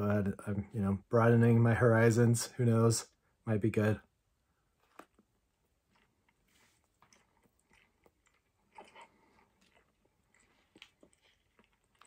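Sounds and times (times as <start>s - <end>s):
faint chewing: 4.8s - 12.0s.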